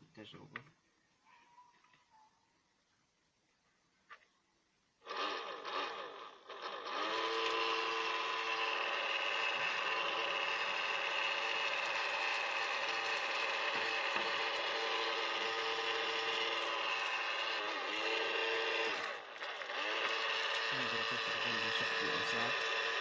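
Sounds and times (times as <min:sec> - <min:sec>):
vacuum motor whining: 0:05.0 - 0:23.0.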